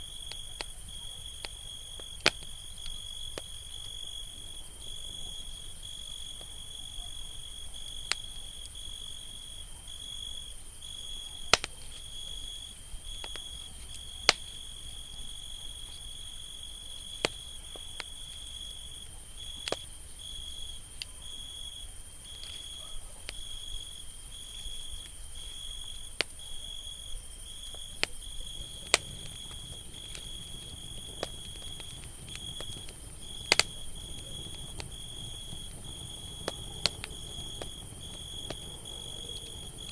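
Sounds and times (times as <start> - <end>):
campfire crackling and popping: 0.0 - 5.2, 11.4 - 20.0, 27.6 - 39.9
cricket trill: 0.0 - 39.9.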